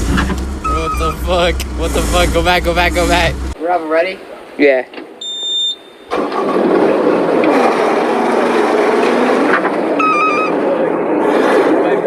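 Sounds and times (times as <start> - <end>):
bulldozer diesel engine: 0.0 - 3.6.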